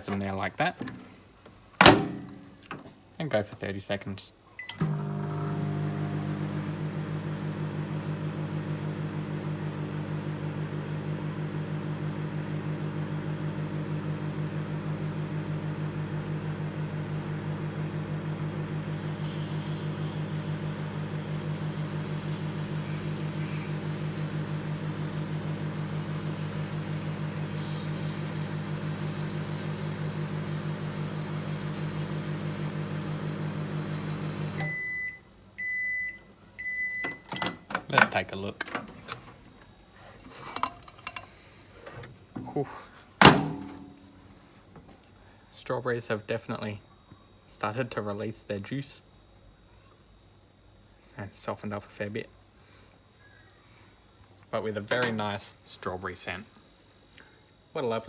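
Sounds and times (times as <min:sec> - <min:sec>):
microwave beep: 0:04.6 - 0:37.7
microwave oven humming: 0:04.6 - 0:45.5, 0:52.4 - 0:58.0.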